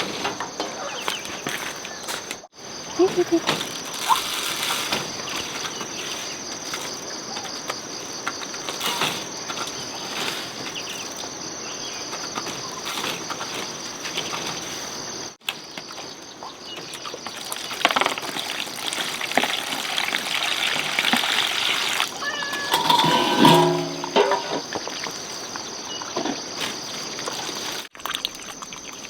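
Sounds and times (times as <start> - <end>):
rustling and scraping: 0.0 - 2.4, 3.0 - 15.2, 22.2 - 25.0
insects droning: 0.0 - 29.0.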